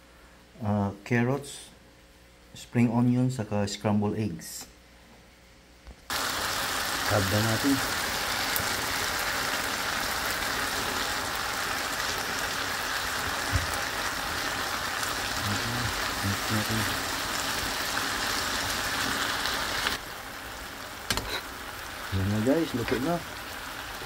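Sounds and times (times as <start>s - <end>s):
chicken and vegetables sizzling: 6.1s - 24.0s.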